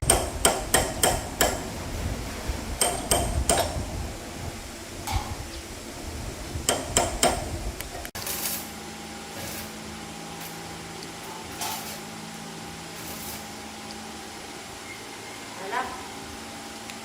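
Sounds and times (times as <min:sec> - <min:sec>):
steady low hum: 0:00.0 - 0:17.0
sharp metal strikes: 0:09.4 - 0:12.2.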